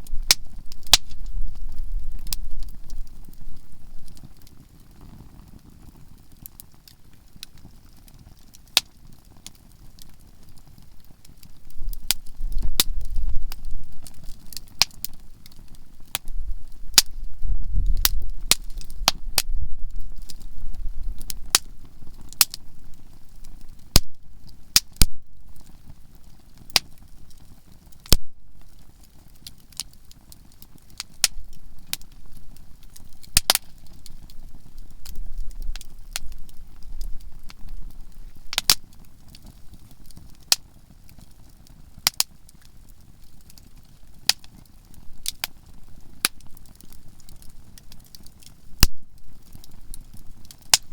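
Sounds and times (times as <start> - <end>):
campfire popping and crackling: 0.0 - 50.9
low rumble: 16.3 - 21.2.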